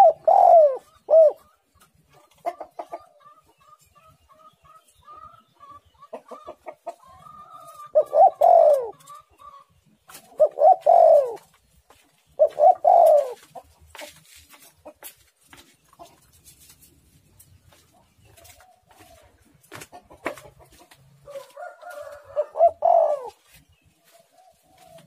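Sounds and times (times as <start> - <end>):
dove cooing: 0.0 - 1.7, 7.1 - 11.5, 12.4 - 13.7, 21.3 - 25.0.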